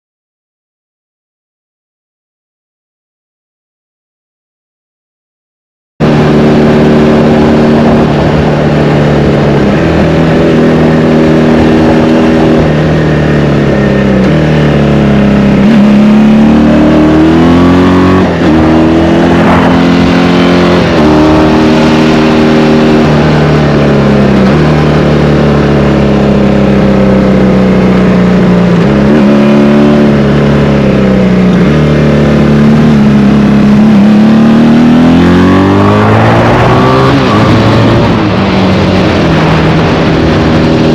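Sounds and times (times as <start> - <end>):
motorcycle engine echoing in tunnel: 6.0 - 40.9.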